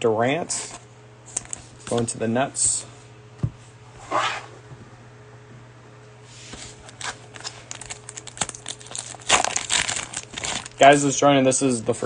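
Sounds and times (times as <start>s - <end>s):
faint steady hum: 0.0s - 12.0s
cards rustling: 6.8s - 11.0s
wrapper crinkling: 6.9s - 11.0s.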